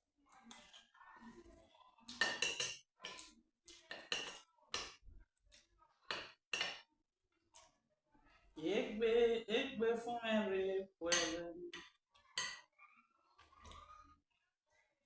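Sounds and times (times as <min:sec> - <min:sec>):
cutlery clinking on dishware: 0:02.1 - 0:03.3, 0:03.9 - 0:05.0, 0:06.1 - 0:06.9.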